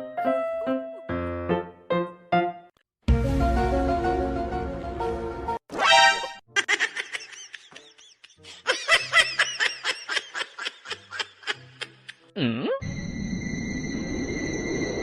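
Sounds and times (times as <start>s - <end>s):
high-pitched laughter: 6.5s - 12.3s.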